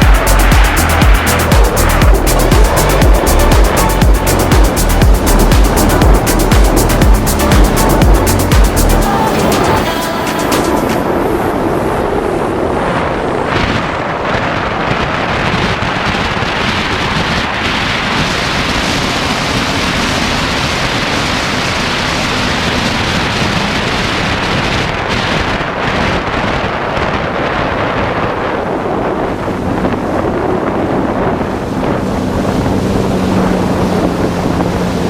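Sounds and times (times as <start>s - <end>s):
water rushing: 0.0s - 26.1s
jet ski engine running: 0.0s - 35.0s
wind buffeting microphone: 0.0s - 35.0s.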